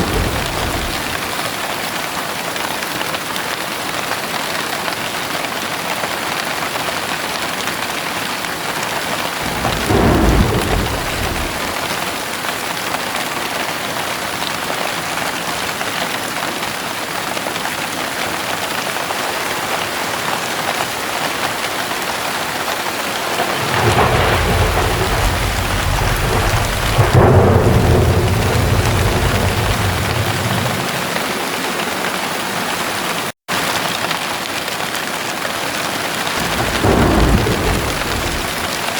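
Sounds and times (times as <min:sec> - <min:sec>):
thunder rumbling: 0:00.0 - 0:01.6, 0:09.2 - 0:12.3, 0:22.7 - 0:32.4, 0:36.4 - 0:38.9
heavy rain: 0:00.0 - 0:38.9.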